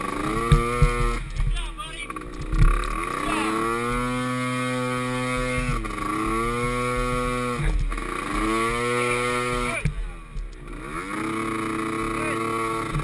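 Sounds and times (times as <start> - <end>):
small atv engine revving: 0.0 - 13.0.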